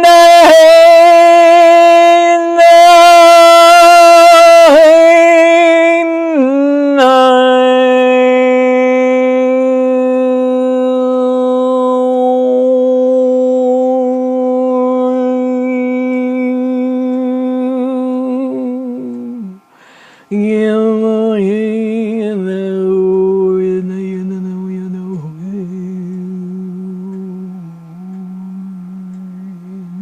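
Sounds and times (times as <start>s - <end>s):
woman humming long notes: 0.0s - 30.0s
breath: 19.7s - 20.3s.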